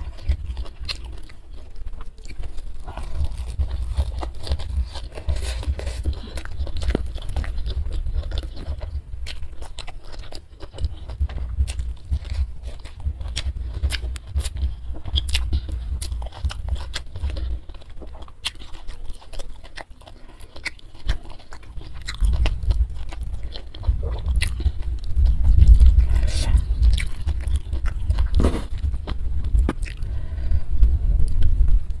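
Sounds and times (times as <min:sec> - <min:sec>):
close chewing with mouth clicks: 0:00.0 - 0:32.0.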